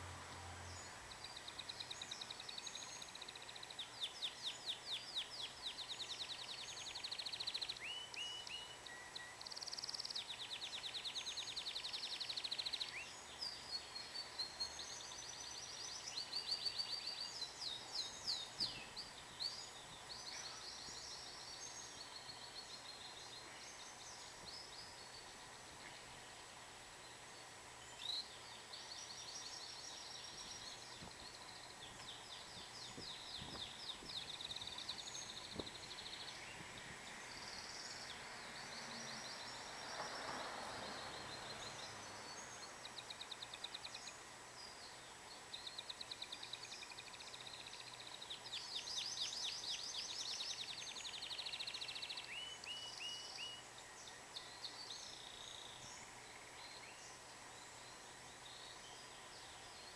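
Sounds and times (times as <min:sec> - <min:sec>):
canary singing trills: 0:00.0 - 0:39.8.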